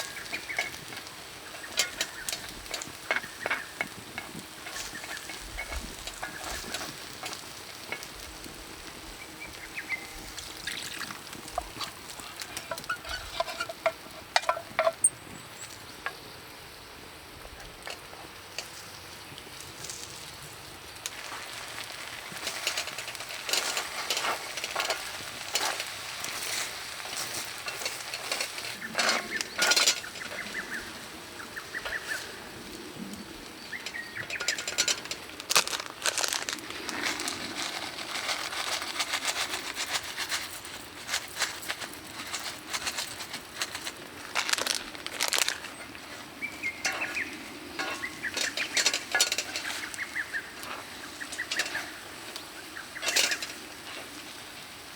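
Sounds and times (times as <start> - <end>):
birds chirping: 0.0 - 21.0, 26.4 - 35.5, 42.0 - 54.4
batter sizzling on hot plate: 0.0 - 54.9
sharp clicks and scrapes: 10.1 - 15.1, 21.1 - 32.3, 33.7 - 54.1.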